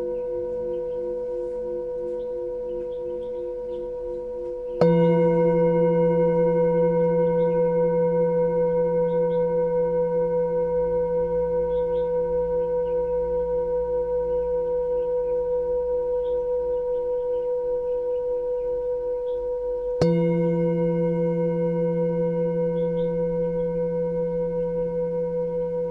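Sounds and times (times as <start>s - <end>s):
small birds chirping: 0.0s - 5.7s, 11.4s - 25.9s
singing bowl ringing: 0.0s - 25.9s.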